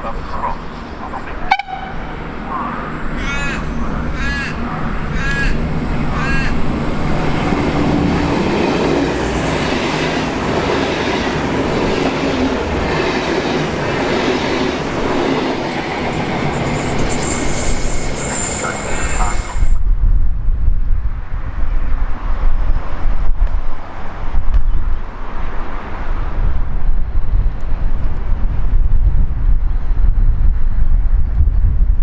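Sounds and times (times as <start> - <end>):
wind buffeting microphone: 0.0 - 32.0
train wheels rushing on track: 0.3 - 19.8
high wheel squeal: 16.5 - 19.8.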